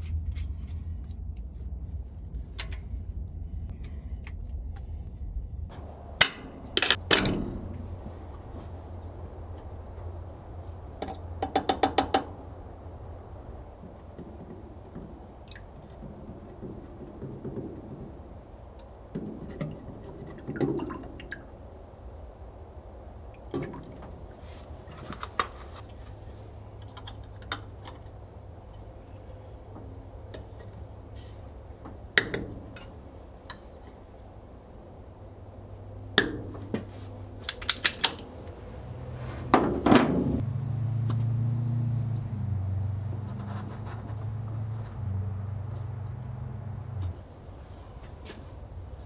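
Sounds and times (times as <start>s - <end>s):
low steady hum: 5.6s - 49.0s
metal clinks and knocks: 5.7s - 21.0s.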